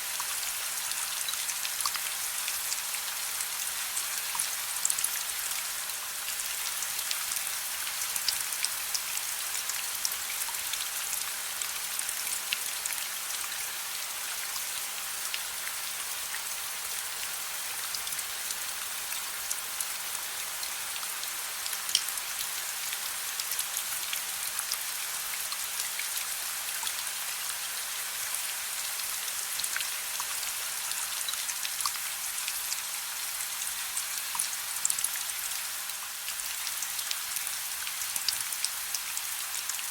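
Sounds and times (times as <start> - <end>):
soft steady rain: 0.0 - 39.9
raindrops ticking on a surface: 21.7 - 27.6.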